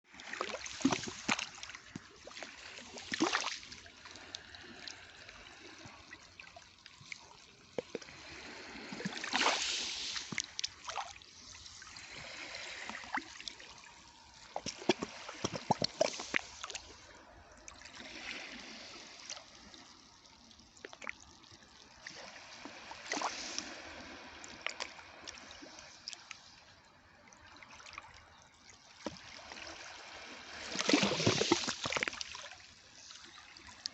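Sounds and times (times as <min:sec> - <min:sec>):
trickling water with clicks: 0:00.1 - 0:09.5, 0:10.1 - 0:18.4, 0:19.1 - 0:23.7, 0:24.4 - 0:29.9, 0:30.7 - 0:33.9
sea waves washing ashore: 0:08.0 - 0:19.4, 0:22.0 - 0:26.1.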